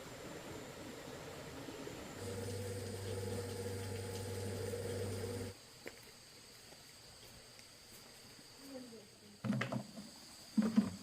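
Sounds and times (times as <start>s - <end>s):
low mechanical hum: 0.0s - 5.6s.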